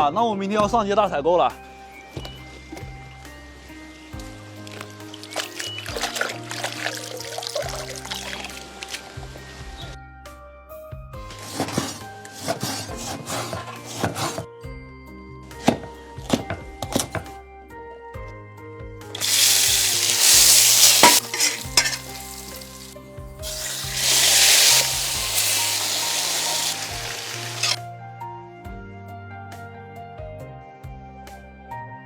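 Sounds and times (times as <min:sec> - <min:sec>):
food sizzling in hot oil: 0:19.2 - 0:27.8.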